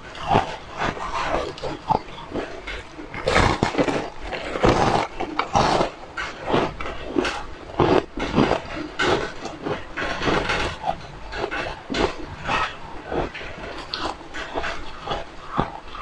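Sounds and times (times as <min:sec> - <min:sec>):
crunching and chewing food: 0:00.0 - 0:16.0.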